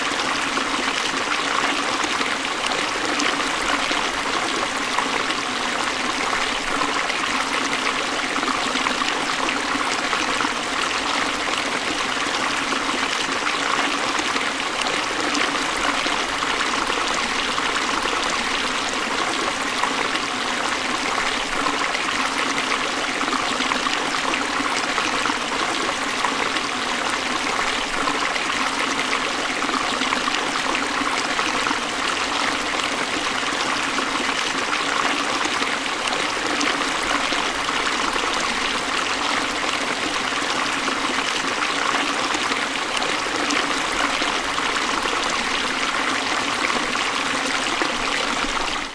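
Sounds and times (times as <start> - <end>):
stream flowing over rocks: 0.0 - 48.9.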